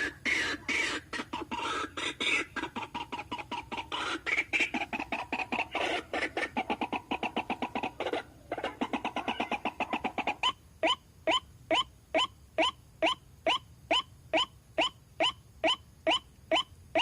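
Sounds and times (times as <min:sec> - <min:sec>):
waterhen croaking: 0:00.0 - 0:17.0.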